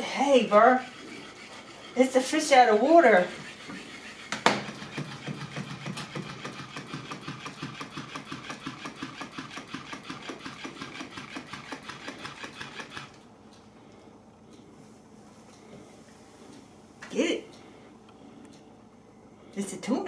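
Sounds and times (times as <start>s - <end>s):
toy motor buzzing: 0.0s - 13.2s.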